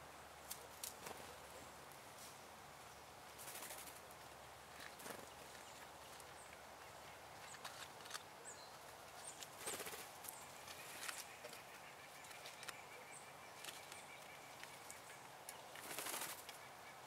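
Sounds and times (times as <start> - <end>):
scratchy rustles and ticks: 7.4 - 8.3.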